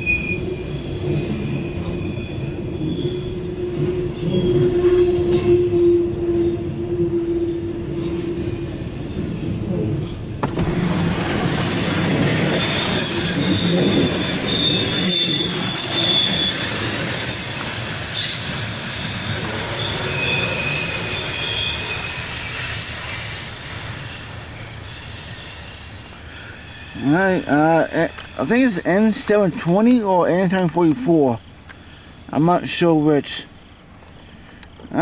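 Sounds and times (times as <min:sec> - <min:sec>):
wheel flanges squealing: 0:00.0 - 0:06.6, 0:11.6 - 0:31.5
train cars rolling past: 0:00.0 - 0:35.0.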